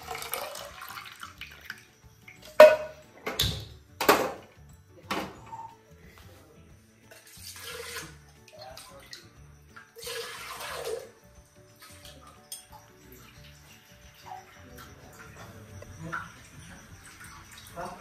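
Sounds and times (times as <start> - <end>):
milk pouring into a pot: 0.0 - 3.6, 7.1 - 18.0
metal pot clanking: 2.4 - 5.7.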